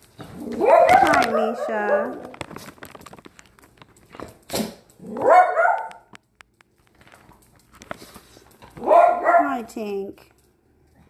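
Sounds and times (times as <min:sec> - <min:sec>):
small dog barking: 0:00.6 - 0:02.3, 0:05.1 - 0:06.1, 0:08.8 - 0:09.7.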